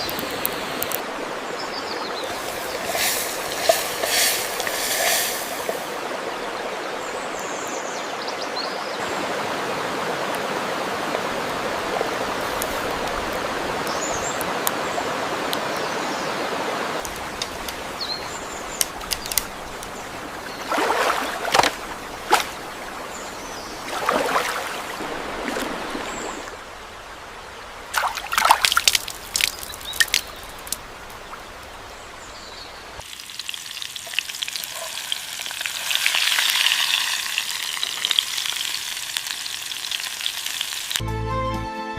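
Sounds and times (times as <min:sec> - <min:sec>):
crackling sizzle: 0:00.0 - 0:01.0, 0:02.2 - 0:06.0, 0:11.4 - 0:15.9, 0:17.0 - 0:20.6, 0:28.7 - 0:41.0
water pouring: 0:02.2 - 0:06.0, 0:18.7 - 0:22.7, 0:28.0 - 0:30.8, 0:33.0 - 0:41.0.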